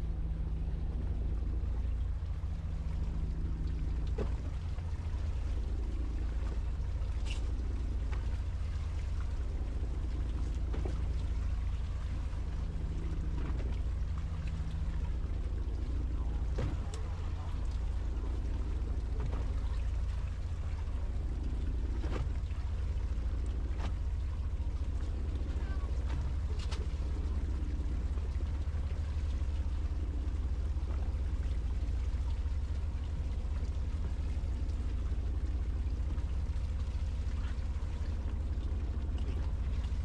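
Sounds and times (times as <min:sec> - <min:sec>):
boat engine droning: 0:00.0 - 0:40.0.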